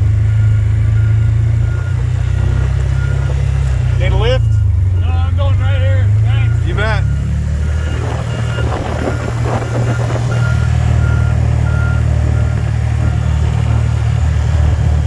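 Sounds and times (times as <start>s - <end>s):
vehicle engine droning: 0.0s - 15.0s
high electronic beeps: 2.9s - 14.0s.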